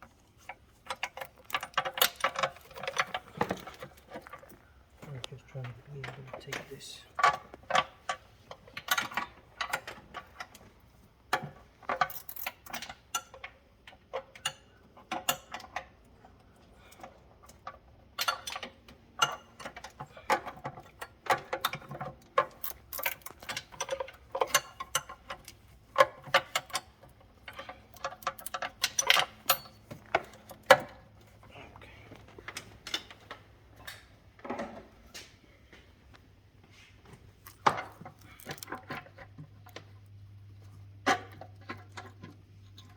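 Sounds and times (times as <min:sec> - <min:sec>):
metal tools clinking and rattling: 0:00.9 - 0:04.6, 0:11.8 - 0:13.5, 0:18.2 - 0:31.4.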